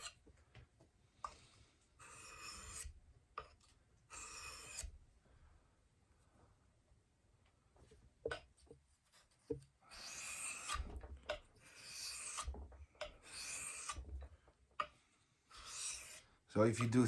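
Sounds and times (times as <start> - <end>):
knife scraping on whetstone: 2.0 - 4.9, 9.9 - 10.9, 11.6 - 12.5, 13.1 - 14.1, 15.5 - 16.3.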